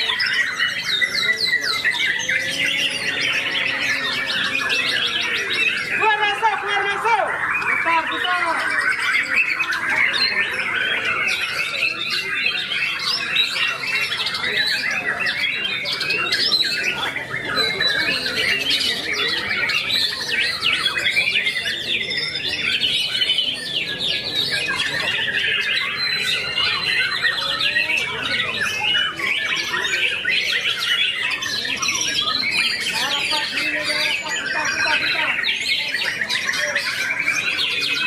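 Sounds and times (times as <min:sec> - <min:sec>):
bird singing rapid notes: 0:00.0 - 0:38.0.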